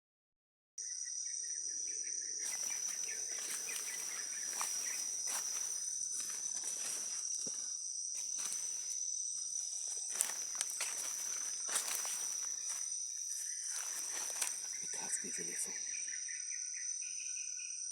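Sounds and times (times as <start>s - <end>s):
insects droning: 0.8s - 17.9s
vegetation rustling and snapping: 9.8s - 12.8s.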